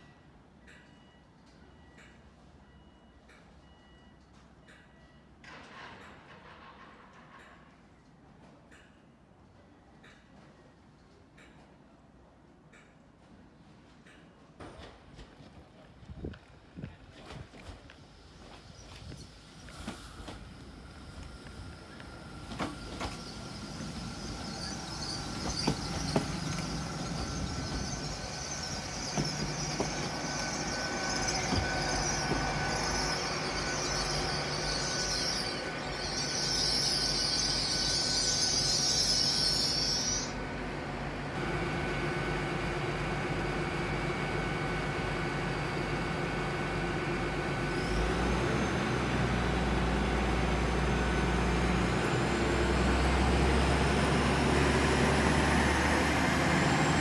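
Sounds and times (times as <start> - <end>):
train passing close by: 15.1 - 57.0
wheels squealing on track: 22.5 - 40.4.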